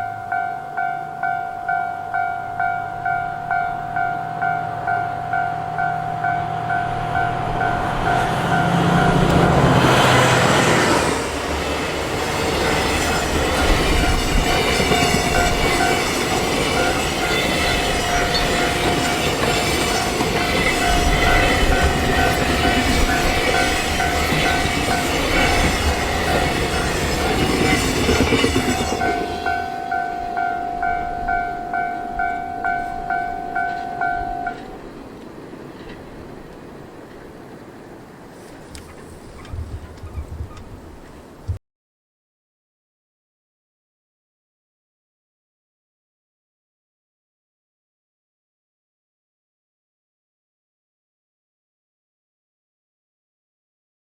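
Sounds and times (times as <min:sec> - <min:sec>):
train horn: 0:01.6 - 0:11.2
train wheels clattering: 0:07.2 - 0:30.2
level-crossing alarm ringing: 0:12.2 - 0:34.7.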